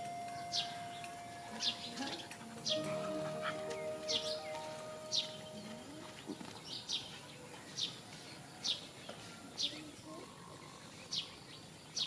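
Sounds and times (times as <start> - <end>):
bird chirping high falling chirp: 0.0 - 6.0
faint background noise: 0.0 - 12.0.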